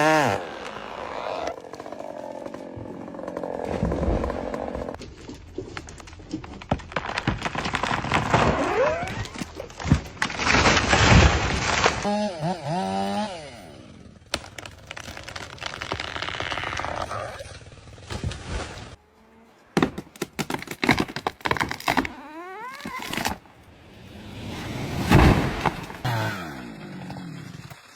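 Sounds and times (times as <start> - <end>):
chainsaw cutting: 0.0 - 5.0, 10.3 - 18.8, 25.4 - 27.9
timber cracking and breaking: 0.0 - 13.2, 14.2 - 19.0, 19.8 - 23.6, 25.0 - 27.9.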